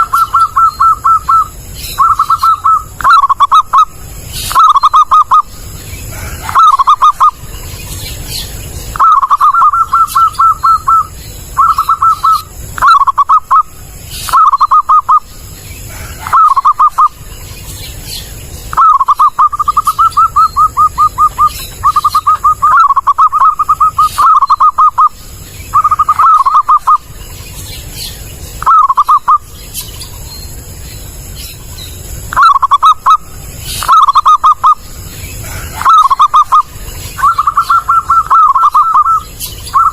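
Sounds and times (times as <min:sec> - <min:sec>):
dove cooing: 0:00.0 - 0:07.5, 0:08.3 - 0:17.2, 0:18.7 - 0:27.1, 0:28.6 - 0:29.5, 0:32.3 - 0:39.9.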